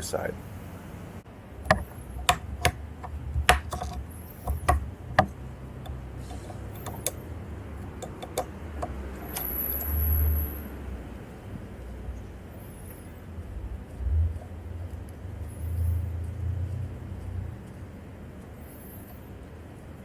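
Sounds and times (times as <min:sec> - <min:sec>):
metal tools clicking and knocking: 0:01.7 - 0:10.0.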